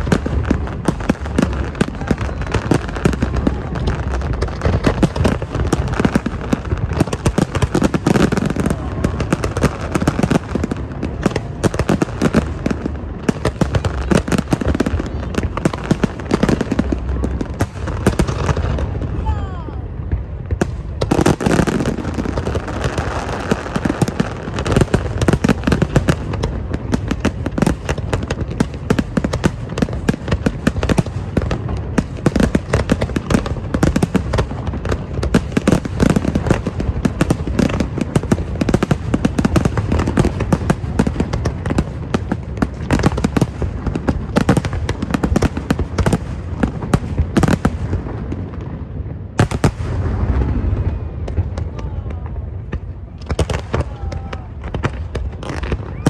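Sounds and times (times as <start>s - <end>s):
steady low rumble: 0.0s - 21.1s
fireworks bangs and crackles: 0.0s - 56.0s.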